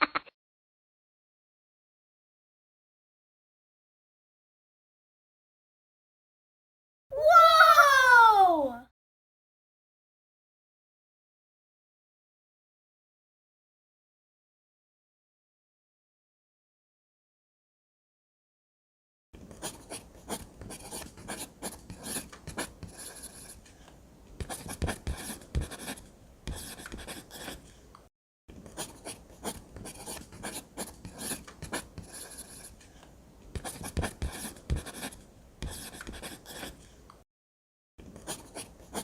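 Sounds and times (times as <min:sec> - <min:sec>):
pen scratching on paper: 0:19.6 - 0:23.7, 0:24.4 - 0:27.8, 0:28.7 - 0:33.0, 0:33.6 - 0:37.0, 0:38.2 - 0:39.0.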